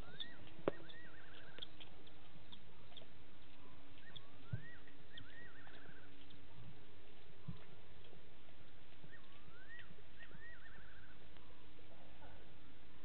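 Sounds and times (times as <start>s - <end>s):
night bird whistled call: 0.0s - 1.9s, 2.5s - 6.4s, 9.0s - 11.7s.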